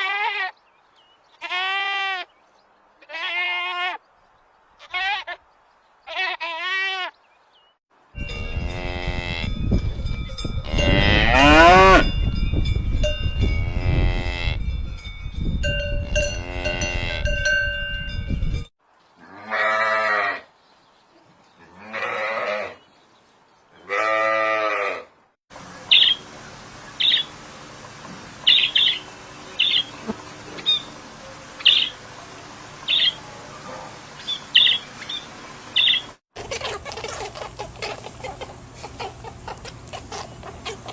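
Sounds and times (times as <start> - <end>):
cowbells ringing: 8.2 - 8.8, 14.7 - 18.7
cattle mooing: 10.7 - 12.1.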